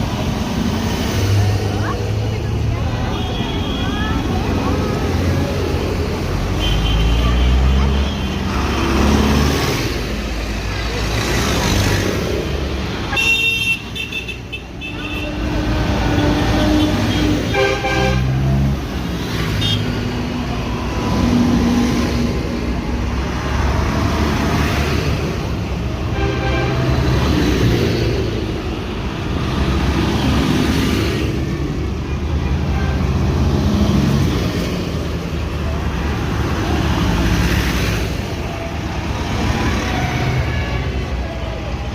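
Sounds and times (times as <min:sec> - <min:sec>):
heavy vehicles rumbling past: 0:00.0 - 0:41.9
vehicle horns tooting: 0:13.1 - 0:18.4.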